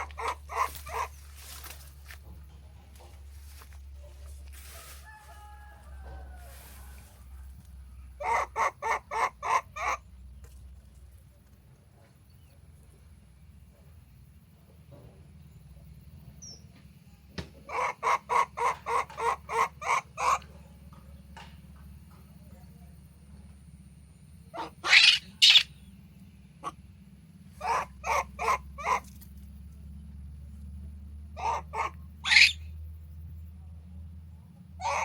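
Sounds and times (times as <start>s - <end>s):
animal calling: 0.0s - 1.6s, 8.2s - 10.1s, 17.7s - 20.6s, 24.4s - 25.9s, 26.6s - 29.2s, 31.4s - 32.7s, 34.8s - 35.0s.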